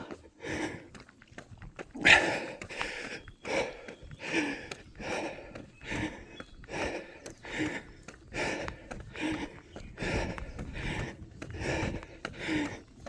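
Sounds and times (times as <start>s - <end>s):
heavy rhythmic breathing: 0.0s - 13.0s.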